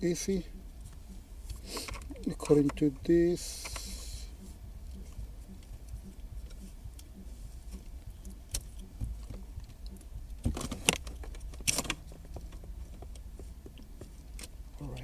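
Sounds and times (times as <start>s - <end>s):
plastic connectors rattling and clicking: 8.5s - 14.6s.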